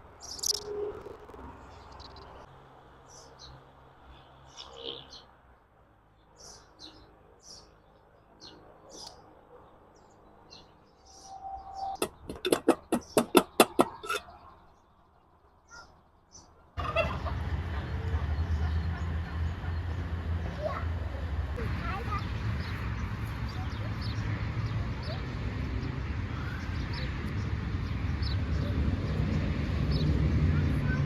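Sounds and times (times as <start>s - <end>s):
small birds chirping: 0.1s - 5.3s, 6.1s - 31.0s
sharp clucking calls: 0.3s - 2.3s, 12.0s - 14.6s, 16.8s - 24.1s.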